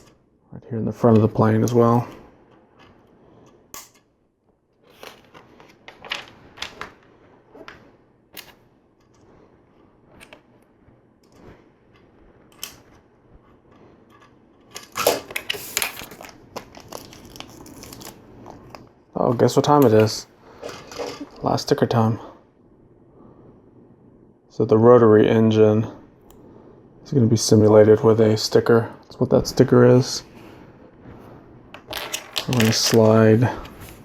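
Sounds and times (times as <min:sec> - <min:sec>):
plastic pieces clicking: 0:31.8 - 0:33.2
rustling: 0:31.8 - 0:34.0.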